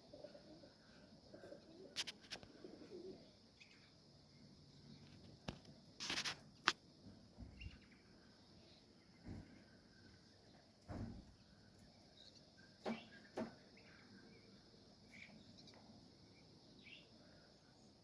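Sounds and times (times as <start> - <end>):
pigeons cooing: 0.0 - 3.4.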